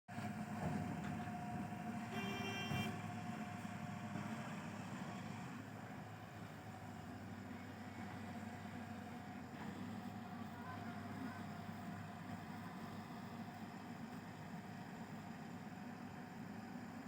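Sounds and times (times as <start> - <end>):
diesel engine running: 0.1 - 17.0.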